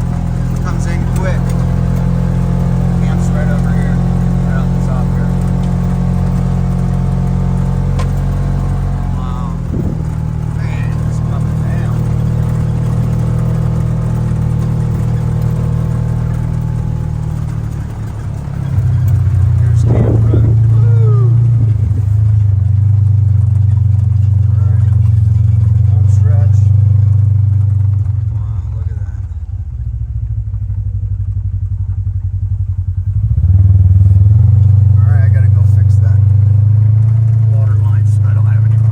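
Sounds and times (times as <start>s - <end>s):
vehicle engine droning: 0.0s - 38.9s.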